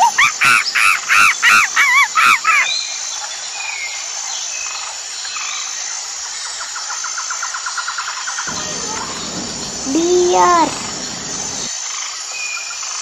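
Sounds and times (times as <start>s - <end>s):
faint bird chirps: 8.5s - 11.7s
monkey screaming: 8.5s - 11.7s.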